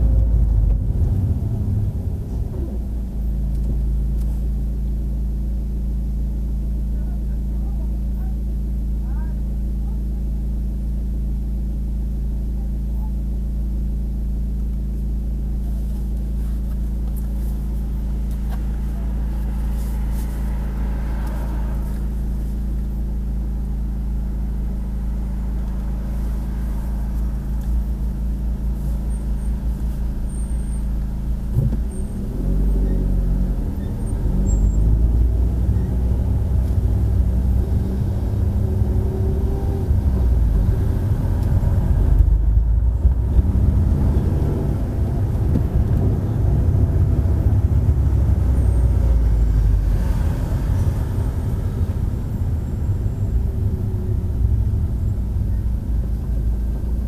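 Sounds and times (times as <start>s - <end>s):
car accelerating: 0.0s - 4.4s, 16.3s - 57.0s
car engine idling: 0.0s - 57.0s.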